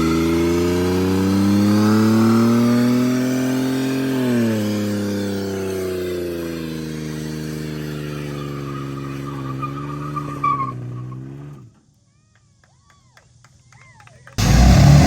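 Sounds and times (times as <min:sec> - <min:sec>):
vehicle engine at full throttle: 0:00.0 - 0:11.6, 0:14.4 - 0:15.0
tires squealing: 0:04.4 - 0:11.8.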